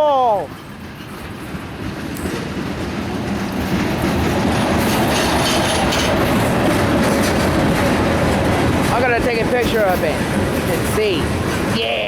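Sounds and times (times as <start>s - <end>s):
freight train wheels clattering on rail: 0.2s - 12.0s.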